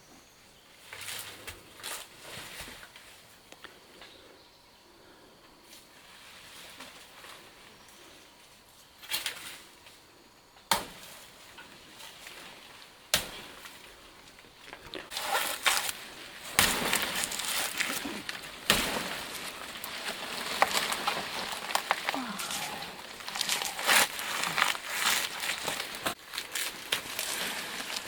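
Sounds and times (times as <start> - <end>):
blade chopping plant stalks: 10.7 - 11.3, 12.1 - 13.9, 15.1 - 28.0
leaves rustling and crunching: 15.0 - 28.0.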